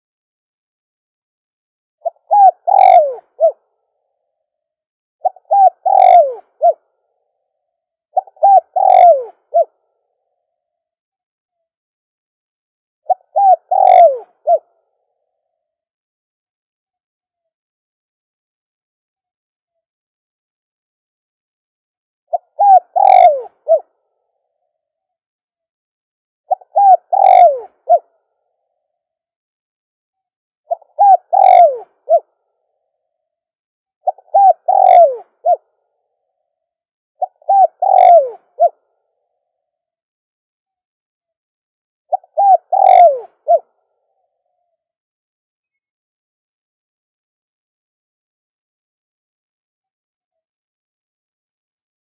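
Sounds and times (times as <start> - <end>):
dove cooing: 2.0 - 3.6, 5.2 - 6.8, 8.2 - 9.9, 13.1 - 14.7, 22.3 - 24.0, 26.5 - 28.1, 30.7 - 32.3, 34.0 - 35.7, 37.2 - 38.8, 42.1 - 43.8.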